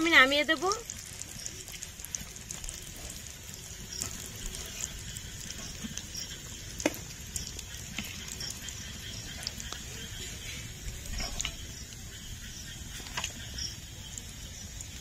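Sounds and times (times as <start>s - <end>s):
chicken deep-frying in oil: 0.0s - 15.0s.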